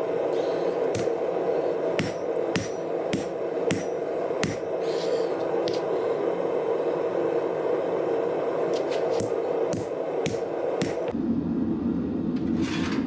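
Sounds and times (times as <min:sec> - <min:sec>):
hammer striking steel: 0:00.0 - 0:05.1, 0:08.8 - 0:11.2
steady hum: 0:00.0 - 0:13.0.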